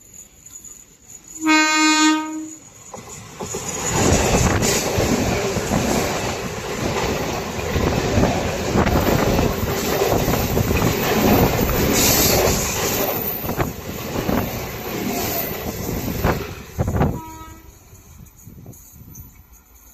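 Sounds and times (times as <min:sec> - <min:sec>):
train rumbling past: 0:00.0 - 0:19.9
wheels clacking over rail joints: 0:02.7 - 0:17.1.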